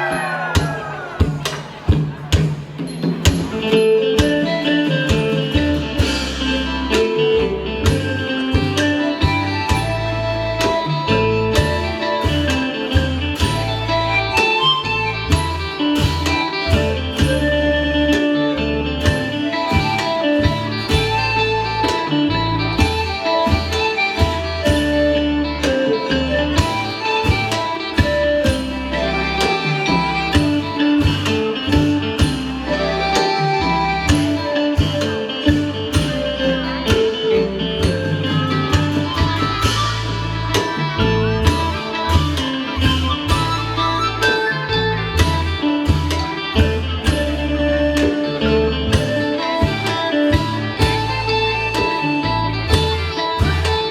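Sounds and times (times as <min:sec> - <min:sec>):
drum strikes: 0:00.0 - 0:10.8, 0:19.0 - 0:25.9, 0:26.5 - 0:44.4
plucked string melody: 0:00.0 - 0:53.9
bass line: 0:03.2 - 0:53.9.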